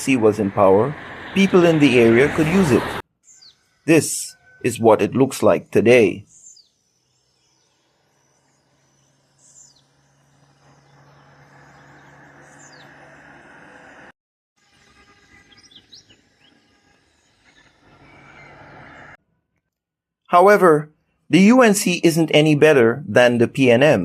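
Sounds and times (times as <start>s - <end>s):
birds chirping: 0.0s - 14.1s, 15.3s - 19.2s.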